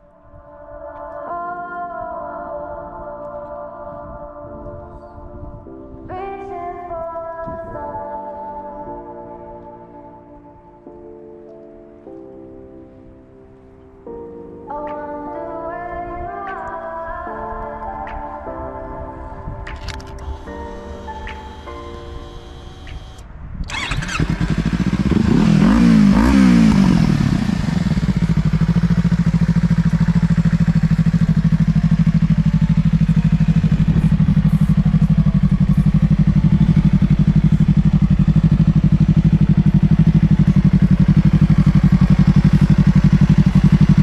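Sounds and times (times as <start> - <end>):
motorcycle engine revving and idling: 22.6 - 44.0.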